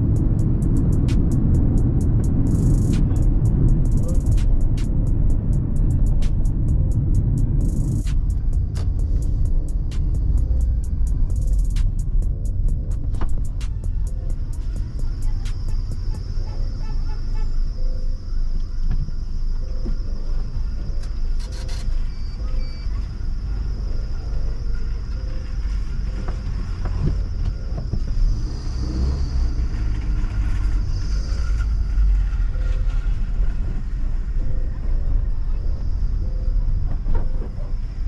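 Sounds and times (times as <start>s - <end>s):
car engine and road noise: 0.0s - 38.0s.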